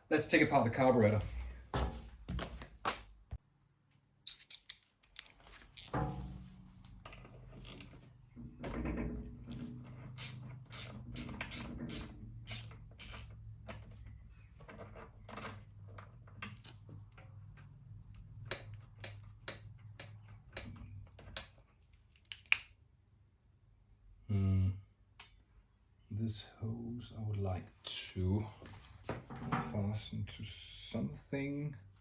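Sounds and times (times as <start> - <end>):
tools and metal parts clicking: 4.3 - 6.0.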